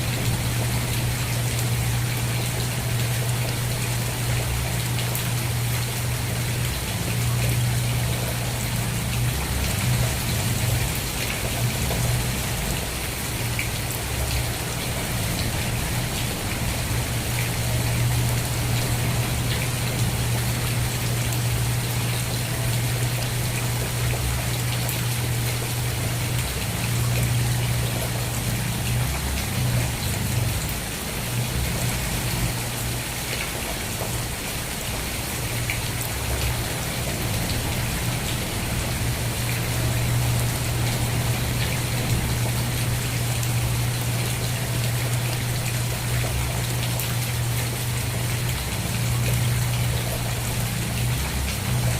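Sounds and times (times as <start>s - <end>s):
steady rain patter: 0.0s - 51.9s.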